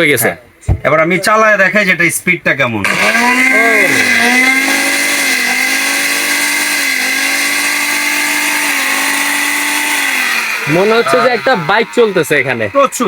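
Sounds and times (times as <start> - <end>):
blender motor whining: 2.8 - 13.0.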